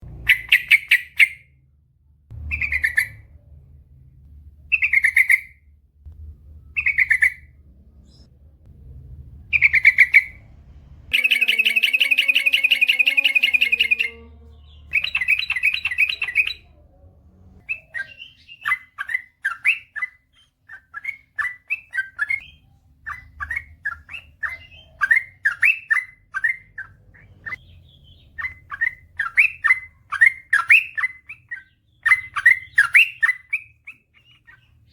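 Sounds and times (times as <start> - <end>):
bulbul singing: 0.0 - 1.6, 2.4 - 3.6, 4.5 - 8.4, 9.4 - 16.8, 17.6 - 34.9.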